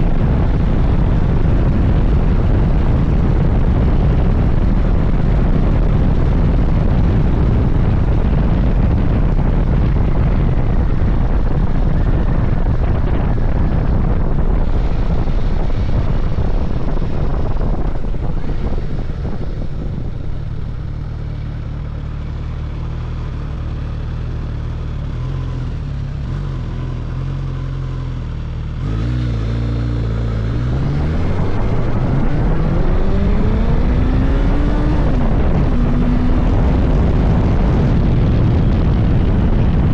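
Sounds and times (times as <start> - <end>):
wind rush: 0.0 - 24.4, 28.7 - 39.9
motorcycle engine: 0.0 - 39.9.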